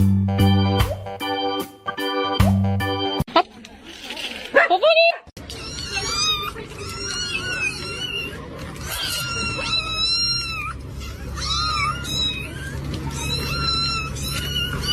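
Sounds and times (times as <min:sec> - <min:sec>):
cat meowing: 0:05.5 - 0:14.9.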